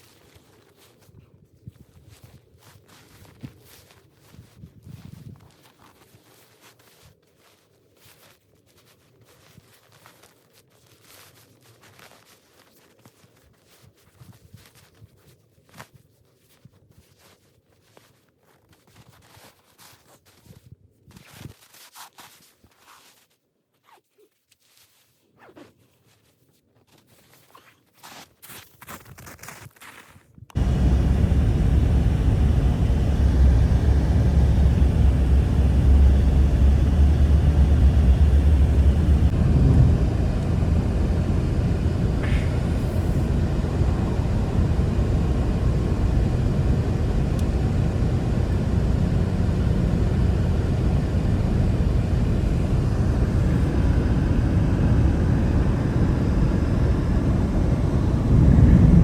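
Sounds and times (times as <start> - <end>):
blizzard wind rushing: 30.6 - 59.0.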